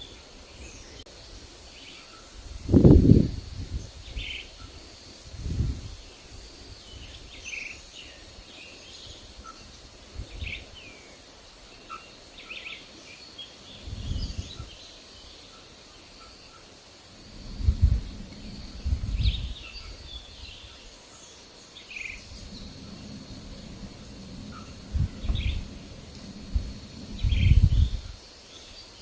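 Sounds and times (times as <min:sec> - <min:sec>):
wind buffeting microphone: 0:02.4 - 0:07.5, 0:08.2 - 0:10.9, 0:13.7 - 0:14.8, 0:17.1 - 0:21.0, 0:21.8 - 0:28.4
small birds chirping: 0:05.6 - 0:29.0.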